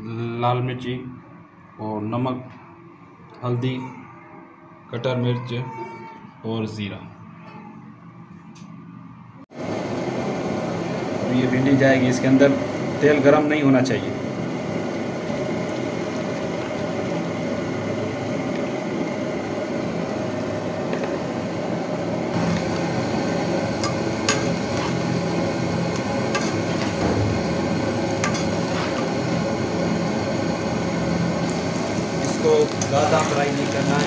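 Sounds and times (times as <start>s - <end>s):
okra sizzling in oil: 14.2s - 21.2s, 22.3s - 34.0s.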